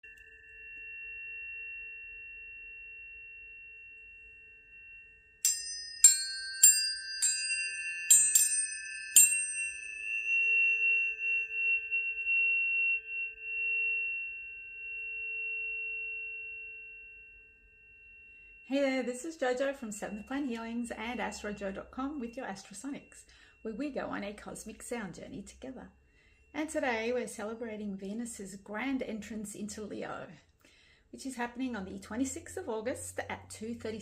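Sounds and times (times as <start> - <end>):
tuning forks struck: 0.0 - 25.4
pure tones ringing: 0.0 - 28.1.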